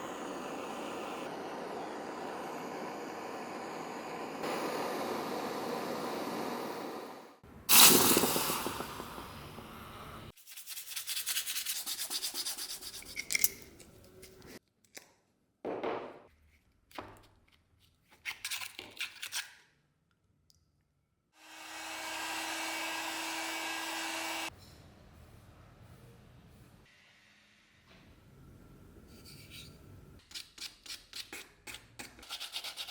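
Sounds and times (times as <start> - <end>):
steady hiss: 0.0 - 10.3.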